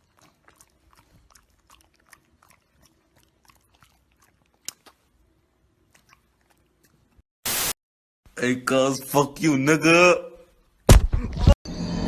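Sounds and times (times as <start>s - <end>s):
faint chewing and crunching: 0.0s - 7.2s.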